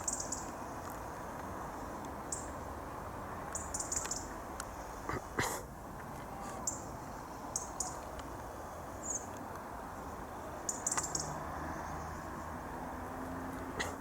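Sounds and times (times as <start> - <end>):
small birds chirping: 0.0 - 0.6, 2.2 - 2.6, 3.5 - 5.3, 6.6 - 12.6
outdoor background hiss: 0.0 - 14.0.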